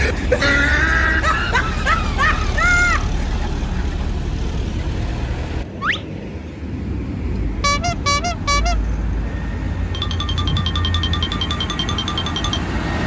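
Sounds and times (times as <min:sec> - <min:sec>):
low engine rumble: 0:00.0 - 0:13.0
multi-note bus horn toots: 0:07.6 - 0:09.0.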